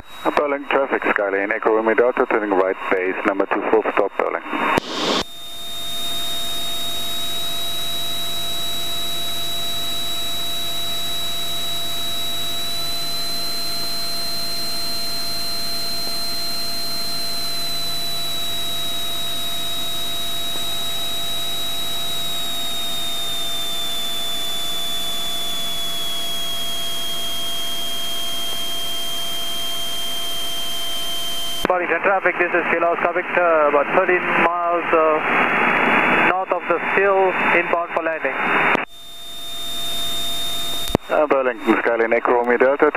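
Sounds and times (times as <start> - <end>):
airplane engine and propeller drone: 0.0 - 42.9
radio call: 0.1 - 5.3, 31.5 - 38.9, 39.7 - 42.9.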